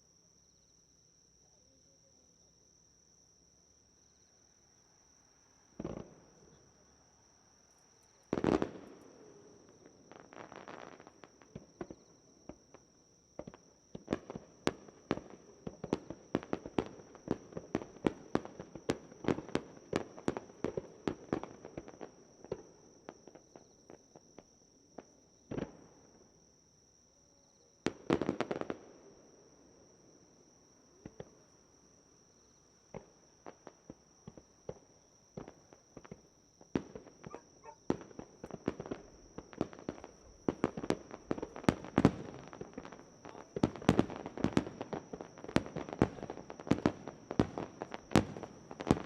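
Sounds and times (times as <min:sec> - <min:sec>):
fireworks bangs and crackling: 0:05.8 - 0:06.5, 0:08.3 - 0:26.1, 0:27.8 - 0:29.2, 0:32.9 - 0:49.0.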